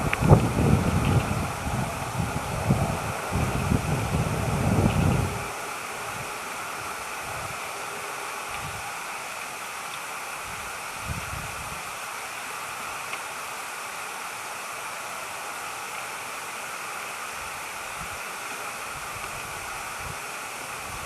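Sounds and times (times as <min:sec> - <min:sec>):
wind buffeting microphone: 0:00.0 - 0:09.0, 0:10.4 - 0:12.0, 0:18.9 - 0:21.0
steady outdoor hiss: 0:00.0 - 0:21.0.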